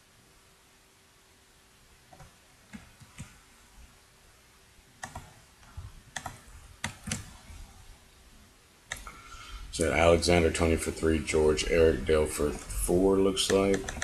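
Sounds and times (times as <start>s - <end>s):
mouse and keyboard clicks: 5.0s - 5.4s, 6.1s - 7.4s, 8.9s - 9.2s, 13.4s - 14.0s.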